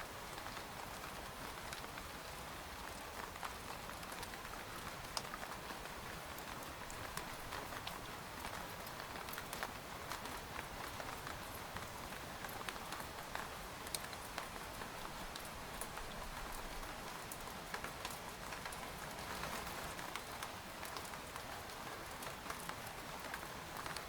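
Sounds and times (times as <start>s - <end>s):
rain pattering on a tent: 0.0s - 24.0s.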